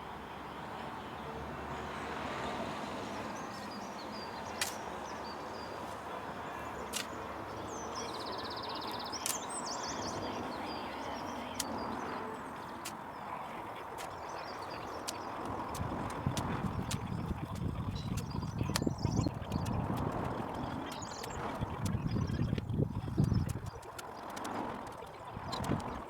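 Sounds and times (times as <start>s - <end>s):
birds chirping: 0.0s - 26.0s
steady outdoor hiss: 0.0s - 26.0s
bird trill: 6.5s - 22.5s.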